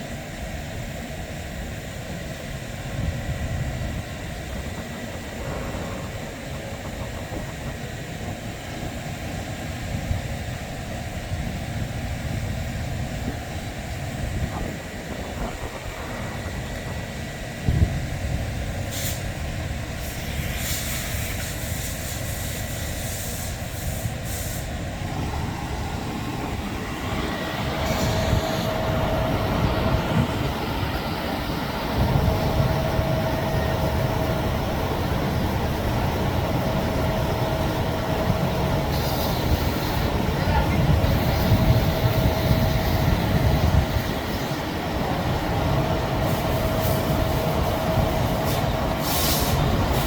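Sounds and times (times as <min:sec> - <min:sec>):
steady hum: 0:00.0 - 0:50.0
hissing bursts of spray: 0:18.8 - 0:25.8, 0:38.9 - 0:40.1, 0:46.2 - 0:50.0
low machine rumble: 0:23.7 - 0:50.0.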